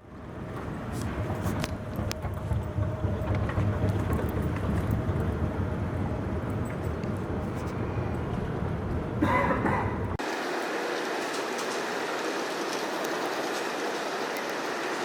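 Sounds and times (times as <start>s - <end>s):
car road noise rumble: 0.0s - 10.2s.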